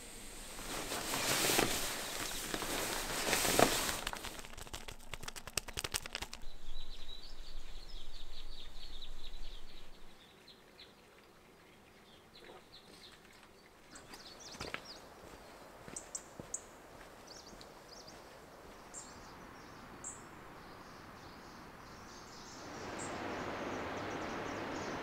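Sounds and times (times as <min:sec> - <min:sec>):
rustling with rapid clicks: 0:00.5 - 0:06.7
small bird chirping: 0:04.2 - 0:11.0.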